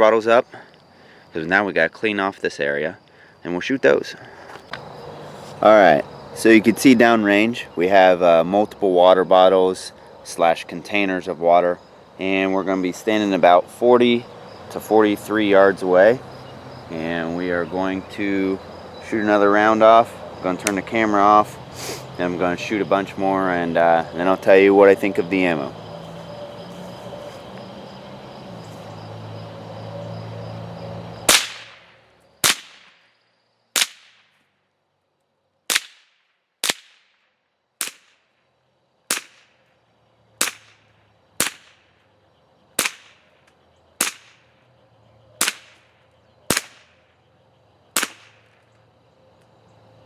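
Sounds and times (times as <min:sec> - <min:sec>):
rifle shots: 0:31.3 - 0:33.0, 0:39.1 - 0:39.5, 0:41.4 - 0:41.8, 0:42.8 - 0:43.2, 0:44.0 - 0:44.4, 0:45.4 - 0:45.8, 0:46.5 - 0:47.0, 0:48.0 - 0:48.6.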